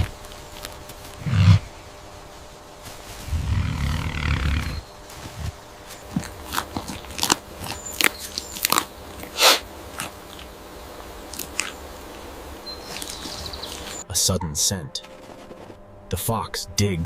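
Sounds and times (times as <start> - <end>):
sharp crunches and clicks: 5.2 - 10.5, 11.3 - 11.8, 12.9 - 14.0.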